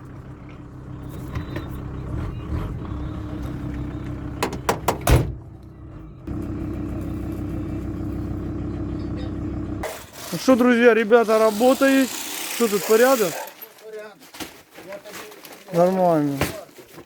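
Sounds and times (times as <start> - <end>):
vehicle engine running: 0.0 - 10.0
engine hum: 0.0 - 10.1
knocks and clunks: 1.2 - 6.5.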